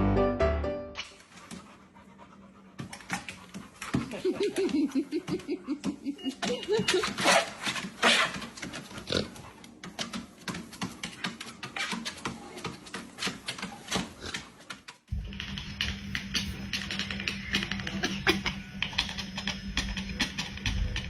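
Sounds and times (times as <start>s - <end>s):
music: 0.0s - 1.1s
dog whining: 5.7s - 8.4s.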